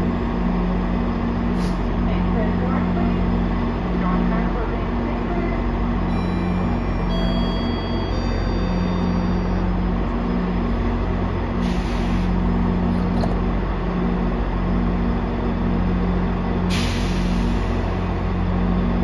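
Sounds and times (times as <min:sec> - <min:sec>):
diesel locomotive idling hum: 0:00.0 - 0:19.0
air hissing: 0:11.6 - 0:12.3, 0:16.7 - 0:17.8.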